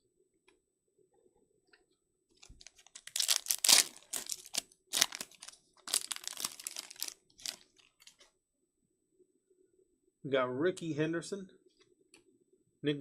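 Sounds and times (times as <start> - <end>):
foil wrapper crinkling: 2.4 - 8.2.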